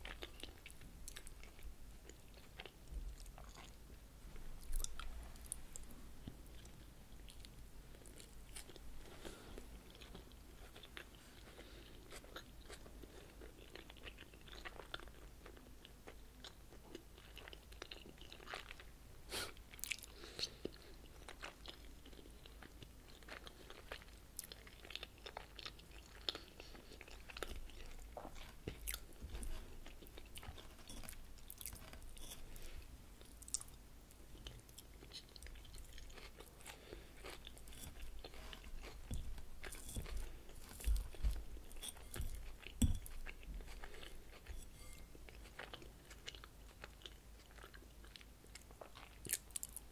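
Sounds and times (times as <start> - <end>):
chewing crunchy salad: 0.0 - 3.9, 4.6 - 18.9, 19.5 - 49.9.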